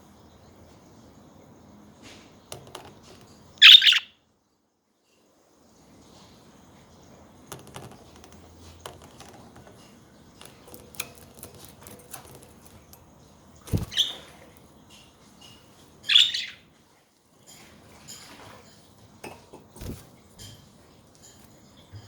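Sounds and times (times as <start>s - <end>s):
budgerigar harsh chirp: 3.6s - 4.1s, 16.1s - 16.6s
light clicks and taps: 7.5s - 13.7s.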